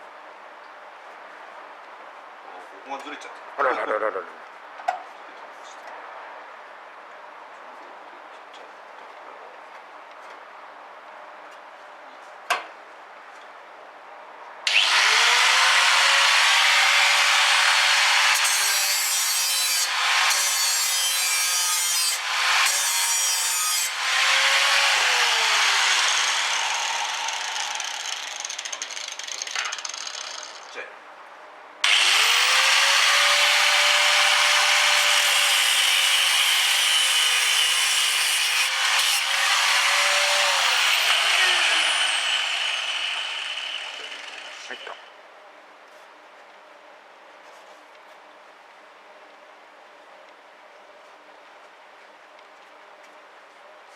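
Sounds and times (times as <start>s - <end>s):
electric grinder grinding steel: 14.7s - 30.4s, 31.8s - 45.0s.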